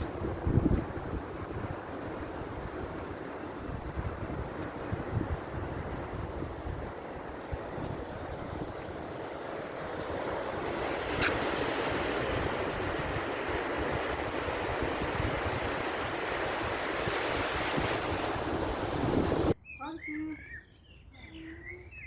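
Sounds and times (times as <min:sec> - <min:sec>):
surf washing onto beach: 0:00.0 - 0:19.6
wind buffeting microphone: 0:00.0 - 0:19.6
brief sharp click: 0:11.2 - 0:11.4.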